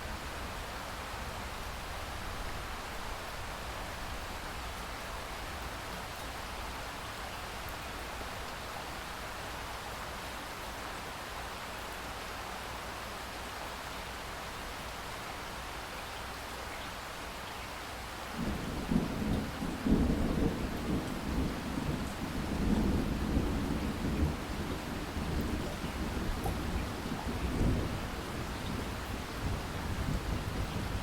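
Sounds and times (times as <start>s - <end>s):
rain hiss: 0.0s - 31.0s
thunder rumbling: 18.4s - 31.0s.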